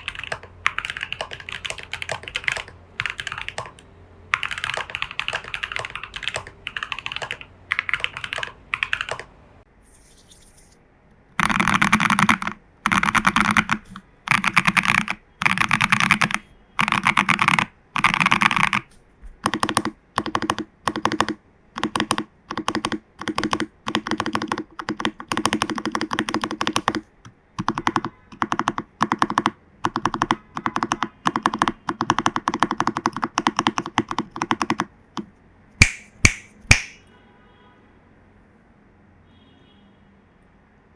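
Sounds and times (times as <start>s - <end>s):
mechanical keyboard keys clacking: 0.0s - 9.3s, 11.4s - 37.0s.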